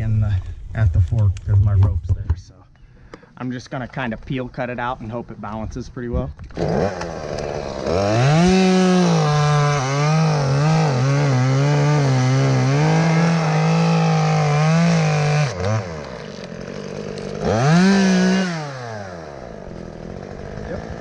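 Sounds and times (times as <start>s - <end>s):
chainsaw cutting wood: 6.5s - 21.0s.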